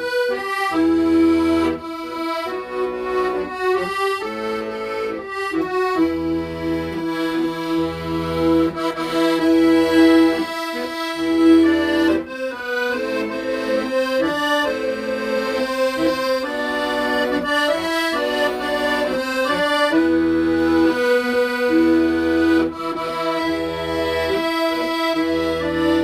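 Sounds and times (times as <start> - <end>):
accordion playing slow melody: 0.0 - 26.0.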